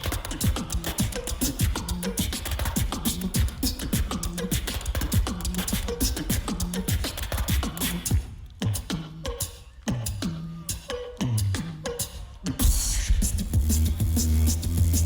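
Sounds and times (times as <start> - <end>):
beatboxing snares and clicks: 0.0 - 15.0
deep bass drone: 12.9 - 15.0.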